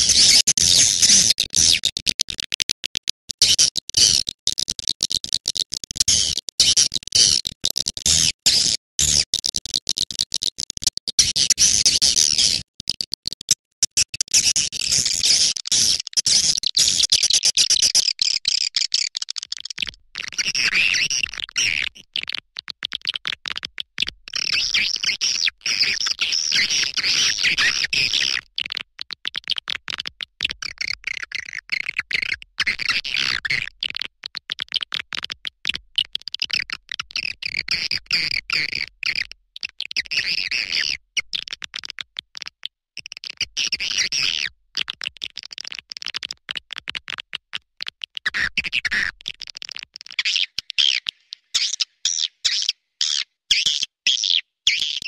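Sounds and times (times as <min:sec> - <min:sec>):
rapid high twittering chirps: 0:50.2 - 0:55.0.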